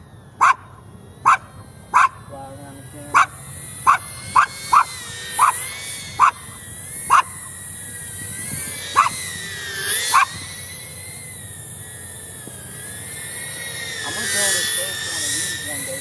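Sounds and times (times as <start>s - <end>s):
drone propellers whining: 0.0s - 16.0s
dog barking: 0.4s - 2.3s, 3.1s - 5.6s, 6.2s - 6.4s, 7.1s - 7.4s, 8.9s - 9.2s, 10.1s - 10.4s.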